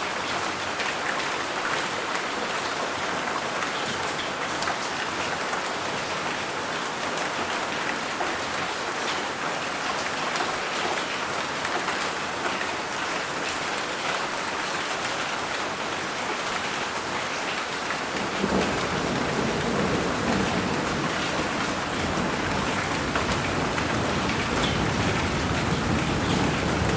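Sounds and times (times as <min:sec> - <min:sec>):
steady rain patter: 0:00.0 - 0:26.9
low thunder rumble: 0:18.4 - 0:26.9.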